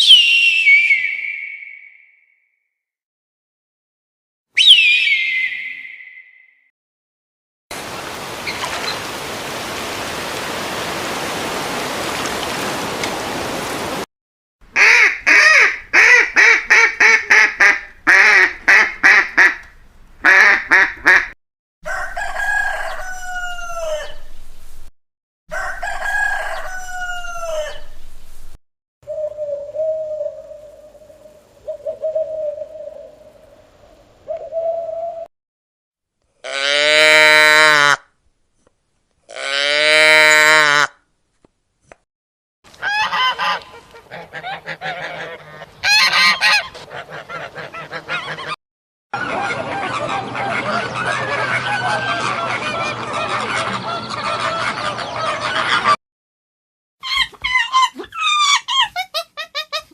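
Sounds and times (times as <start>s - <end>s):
rooster crowing: 21.8s - 24.3s, 25.5s - 28.0s
chickens clucking: 49.2s - 56.0s.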